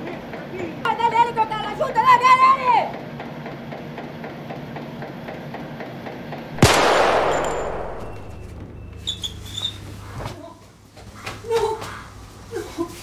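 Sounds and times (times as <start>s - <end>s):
pistol shot with echo: 6.6s - 8.5s.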